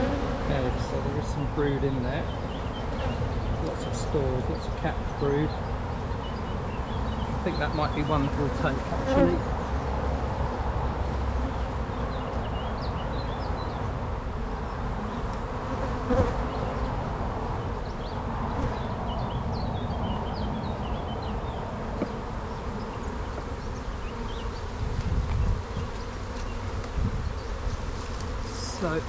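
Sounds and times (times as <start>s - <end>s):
bees buzzing: 0.0s - 29.0s.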